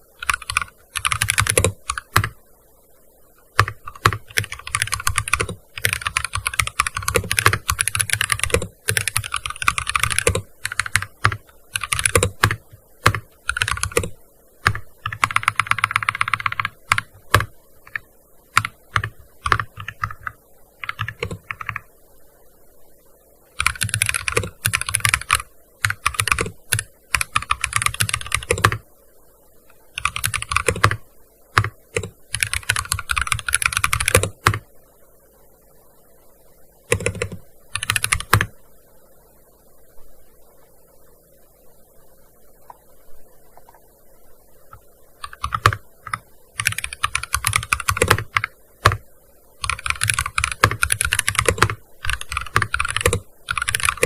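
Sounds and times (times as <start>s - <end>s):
keyboard typing: 0.2s - 2.4s, 3.4s - 21.9s, 23.6s - 28.8s, 29.7s - 31.0s, 31.6s - 34.6s, 36.9s - 38.5s, 44.7s - 49.0s, 49.6s - 54.0s.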